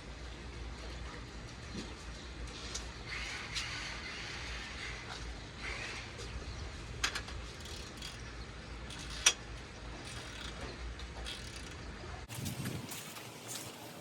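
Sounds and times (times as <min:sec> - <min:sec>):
low steady hum: 0:00.0 - 0:14.0
ratchet wrench clicking: 0:07.0 - 0:08.2, 0:08.9 - 0:09.4, 0:10.0 - 0:10.6, 0:11.2 - 0:11.8.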